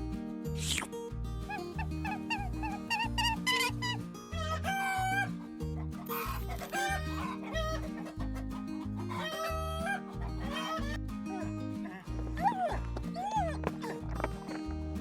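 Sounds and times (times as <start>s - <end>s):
chickens clucking: 1.5s - 15.0s
rooster crowing: 4.4s - 5.3s, 6.1s - 8.3s, 9.0s - 11.5s.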